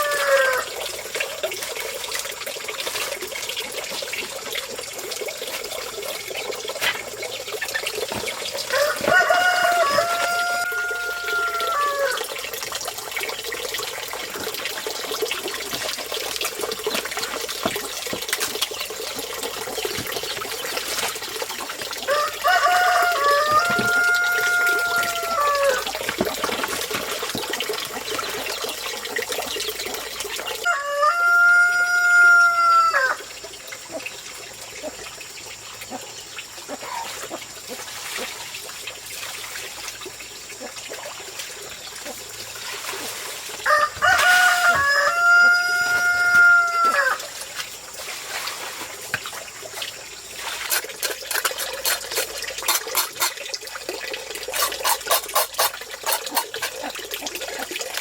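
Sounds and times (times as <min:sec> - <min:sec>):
rooster crowing: 0:00.0 - 0:00.7, 0:08.7 - 0:12.2, 0:22.1 - 0:25.8, 0:30.6 - 0:33.2, 0:43.6 - 0:47.2
water trickling: 0:00.0 - 0:58.0.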